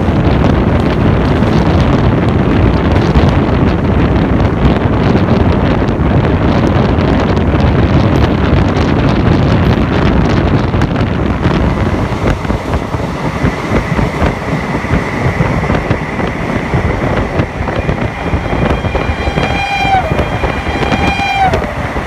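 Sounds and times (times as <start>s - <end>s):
wind on microphone: 0.0s - 22.0s
thin high whine: 12.2s - 22.0s.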